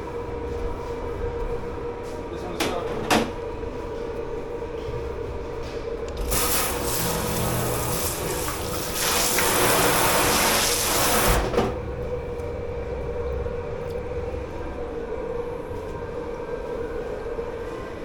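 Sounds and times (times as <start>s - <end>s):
steady machine hum: 3.4s - 17.6s
water rushing from tap into sink: 6.2s - 11.4s.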